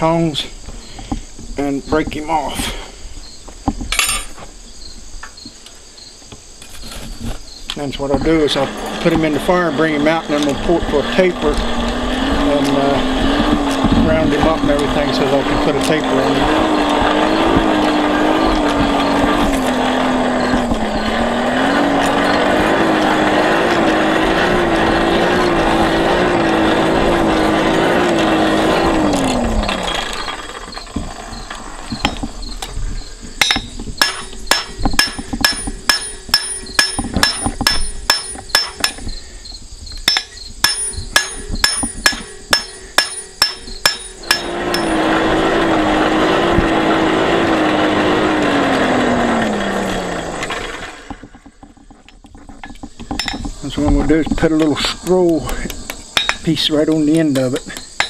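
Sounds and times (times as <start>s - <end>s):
forge blower humming: 7.9s - 39.1s, 40.1s - 51.8s
hammer ringing on anvil: 33.4s - 39.0s, 40.1s - 45.0s, 56.2s - 56.4s.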